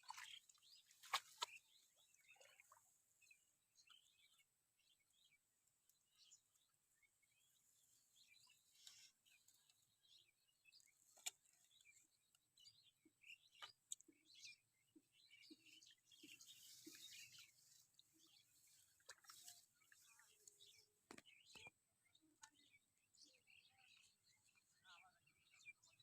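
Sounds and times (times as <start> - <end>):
faint bird chirps: 6.0 - 26.0.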